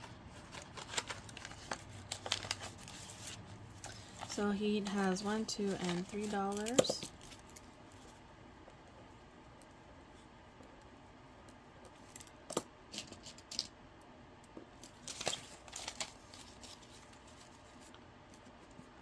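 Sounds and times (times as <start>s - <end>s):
paper cash rustling: 0.0s - 7.7s, 15.0s - 17.9s.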